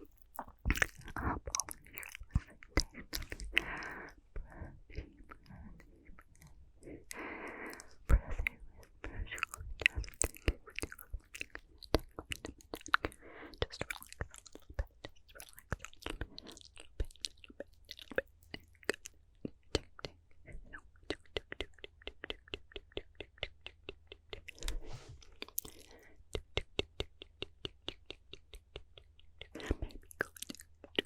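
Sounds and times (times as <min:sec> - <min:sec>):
wet mouth clicks and lip smacks: 0:00.0 - 0:31.0
breathy whispering: 0:00.4 - 0:10.7.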